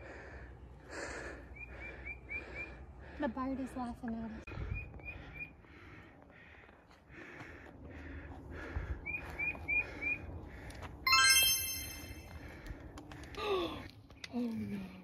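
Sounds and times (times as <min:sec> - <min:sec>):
bright chime sound effect: 0:11.1 - 0:12.3.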